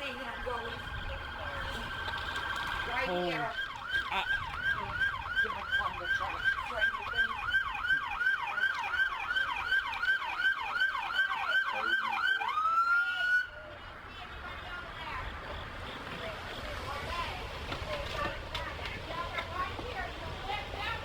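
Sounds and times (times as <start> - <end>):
emergency vehicle siren: 0.0 - 20.9.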